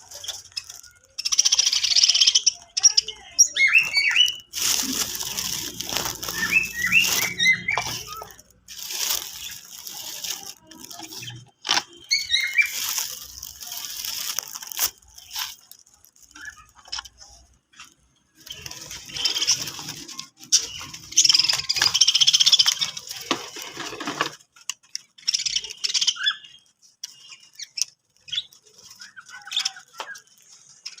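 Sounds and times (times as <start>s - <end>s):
budgies chirping: 0.0s - 23.2s, 25.1s - 31.0s
rustling noise: 3.8s - 25.0s.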